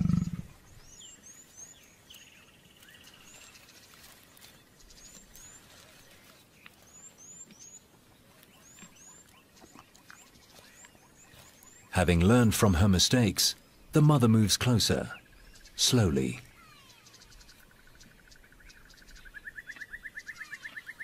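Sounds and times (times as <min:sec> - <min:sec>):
small birds chirping: 0:00.0 - 0:21.0
bird trill: 0:15.1 - 0:21.0.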